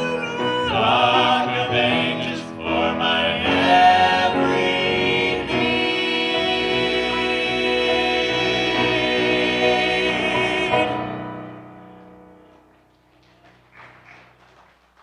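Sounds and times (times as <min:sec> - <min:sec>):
vocal group singing with piano: 0:00.0 - 0:12.2.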